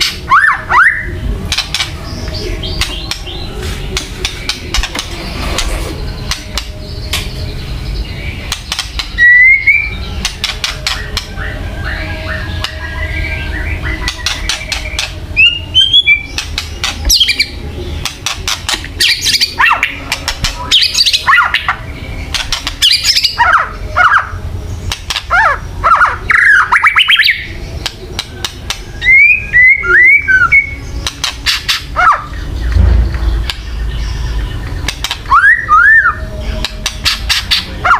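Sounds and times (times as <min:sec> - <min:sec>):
low rumble: 0:32.5 - 0:34.5.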